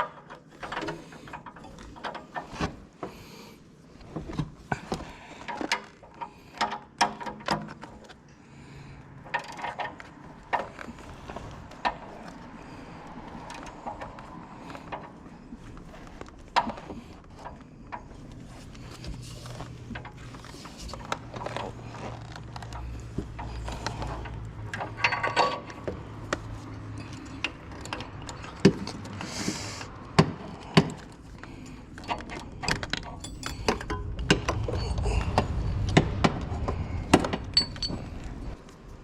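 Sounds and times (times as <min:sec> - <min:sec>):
metal tools clicking and clanking: 0:24.2 - 0:25.9, 0:31.9 - 0:35.8, 0:37.5 - 0:38.4
low hum: 0:33.2 - 0:39.0
low rumble: 0:33.3 - 0:39.0.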